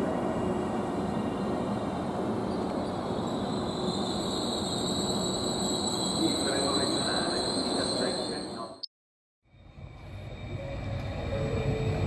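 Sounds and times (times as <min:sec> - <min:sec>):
passenger train rumbling: 0:00.0 - 0:08.8, 0:09.5 - 0:12.0
high thin squeal: 0:02.5 - 0:08.8.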